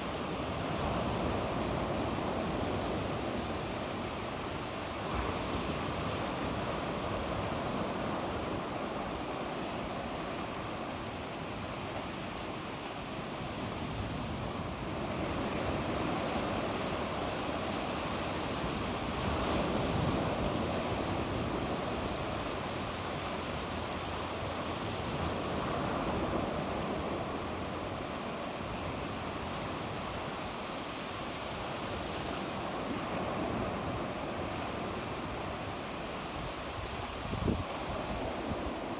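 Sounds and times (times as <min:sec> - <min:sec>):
waves breaking on shore: 0:00.0 - 0:38.9.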